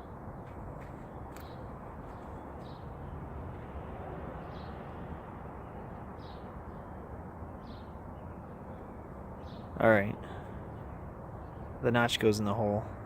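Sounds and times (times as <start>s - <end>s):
outdoor background noise: 0.0s - 13.0s
bird chirping: 0.4s - 3.2s, 5.6s - 12.3s.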